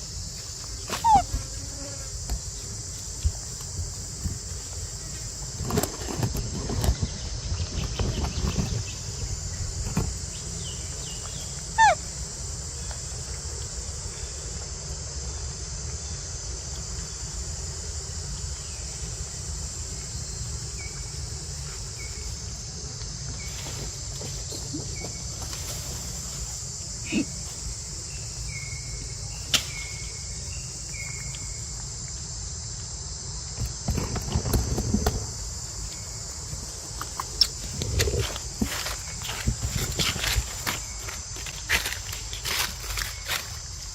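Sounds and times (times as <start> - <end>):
high-pitched insect chorus: 0.0 - 43.9
short high chirp calls: 1.0 - 1.3, 11.7 - 12.0
falling squeak: 1.0 - 1.4, 11.8 - 12.0.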